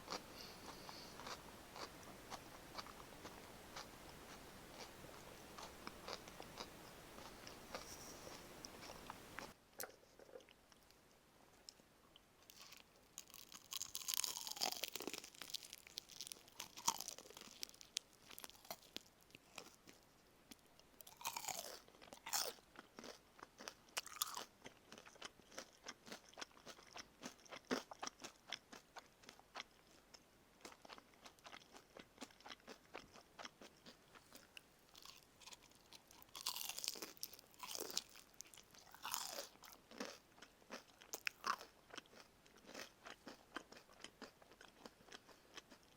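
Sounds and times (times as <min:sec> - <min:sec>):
crunching bites of fried chicken: 0:12.5 - 0:20.0, 0:21.0 - 0:29.9, 0:30.6 - 0:45.9.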